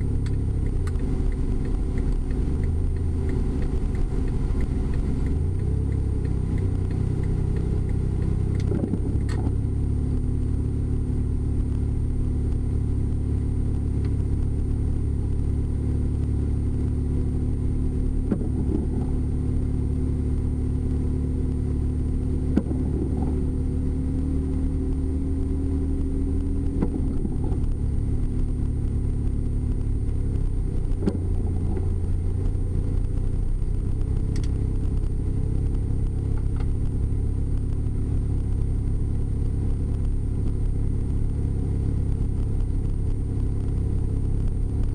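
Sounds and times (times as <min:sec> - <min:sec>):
car engine and road noise: 0:00.0 - 0:44.9
faint clicks: 0:00.2 - 0:09.5.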